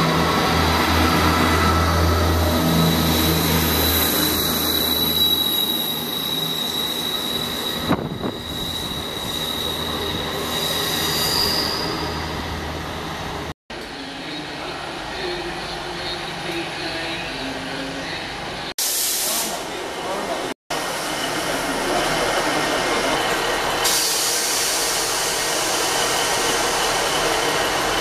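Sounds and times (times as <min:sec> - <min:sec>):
wheel squeal on rails: 0:02.8 - 0:12.4.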